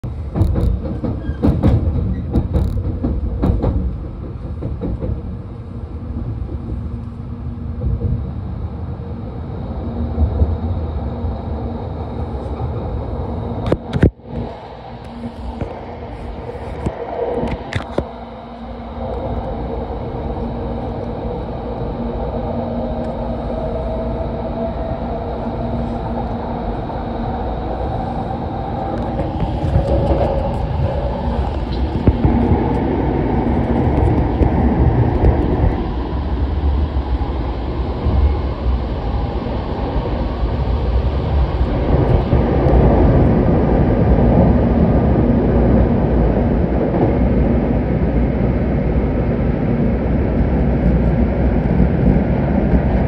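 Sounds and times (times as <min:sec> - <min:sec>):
faint hum: 0:00.0 - 0:53.0
train cabin rumble: 0:00.0 - 0:53.0
sharp knocks: 0:00.3 - 0:05.3.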